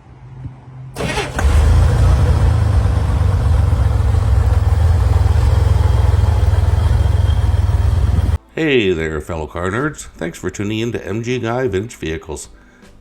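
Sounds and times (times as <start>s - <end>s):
car engine starting and idling: 1.0s - 8.4s.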